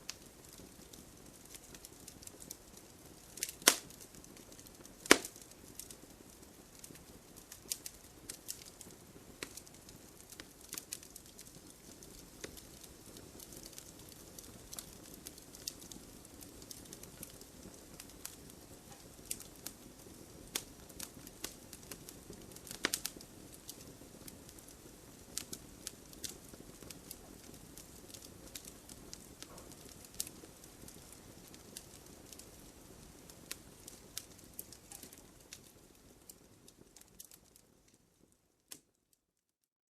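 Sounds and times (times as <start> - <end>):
soft rush of flames: 0.0 - 38.9
firewood crackling and popping: 0.0 - 39.3.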